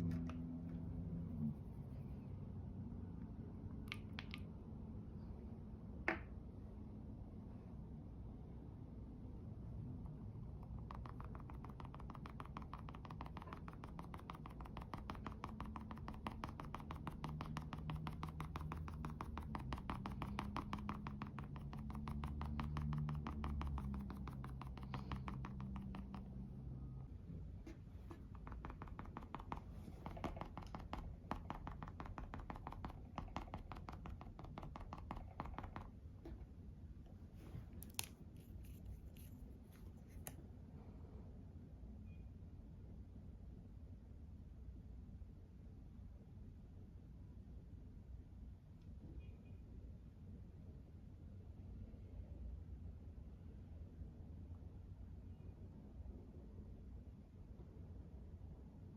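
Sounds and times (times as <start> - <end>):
makeup brush taps: 3.9 - 4.5, 10.1 - 26.7, 27.7 - 36.5
taps and clicks: 10.1 - 26.5, 28.1 - 36.4.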